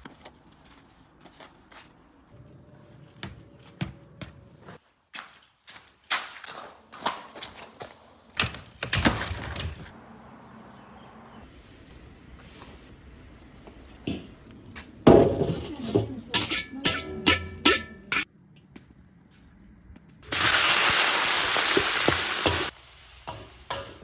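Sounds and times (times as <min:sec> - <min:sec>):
ringing metal clanks: 0:16.3 - 0:18.3.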